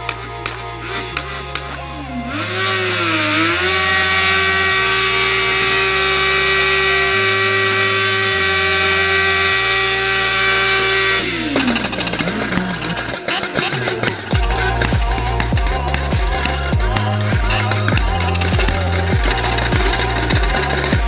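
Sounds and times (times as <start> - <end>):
exhaust crackles: 0.0 - 21.0
motorcycle engine at high revs: 2.3 - 15.2
music with stepping bass line: 11.3 - 13.3, 14.3 - 21.0.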